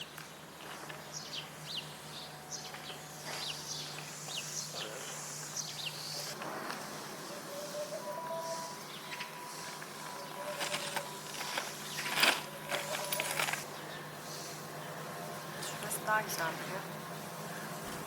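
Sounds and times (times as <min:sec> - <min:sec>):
small birds chirping: 0:00.0 - 0:17.7
steady low hum: 0:00.0 - 0:18.0.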